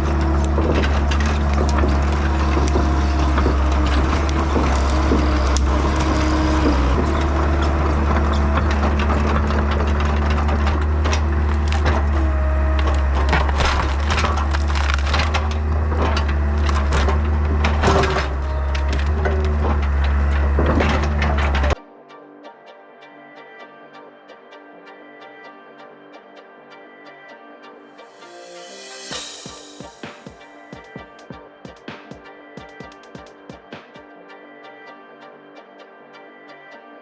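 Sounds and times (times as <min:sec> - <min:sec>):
excavator diesel engine running: 0:00.0 - 0:21.8
wood cracking and splintering: 0:00.0 - 0:21.8.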